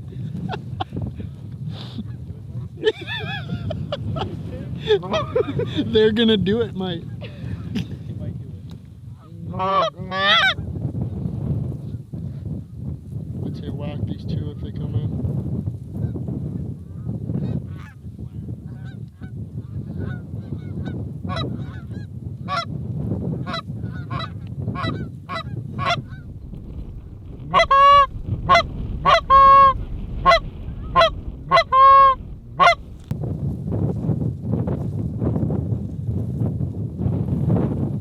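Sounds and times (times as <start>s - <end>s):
low wind rumble: 0.0s - 38.0s
geese honking: 27.3s - 33.1s.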